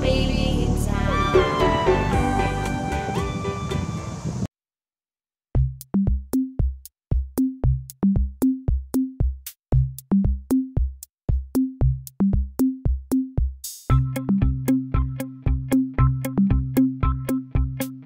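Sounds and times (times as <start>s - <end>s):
drum machine beat: 5.6s - 18.0s.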